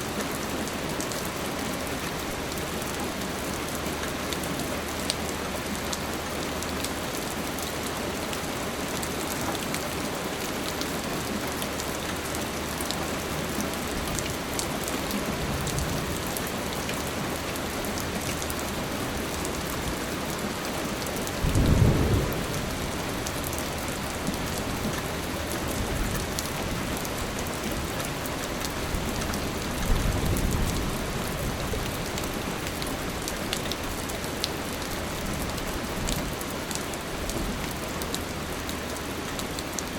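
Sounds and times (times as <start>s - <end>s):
steady rain falling: 0.0s - 39.9s
low rumble of thunder: 21.4s - 24.9s.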